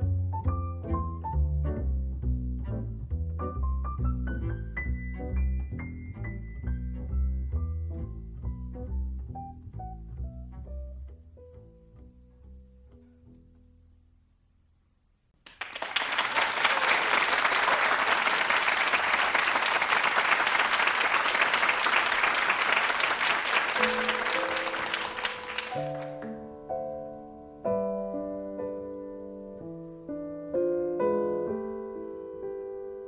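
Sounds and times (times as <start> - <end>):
piano chords: 0.0 - 13.6, 23.4 - 33.0
audience applause: 15.4 - 26.4.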